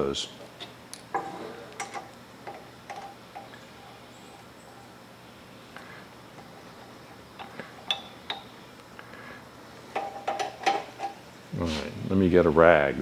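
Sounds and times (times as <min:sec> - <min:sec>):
metal parts clicking and clinking: 0:06.4 - 0:08.5, 0:09.9 - 0:11.2.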